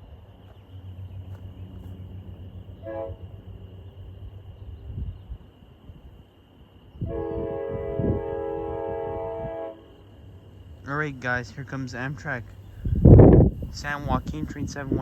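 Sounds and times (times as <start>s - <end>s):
diesel locomotive engine rumble: 0.0s - 15.0s
train horn blasts: 2.6s - 3.8s, 7.0s - 11.0s.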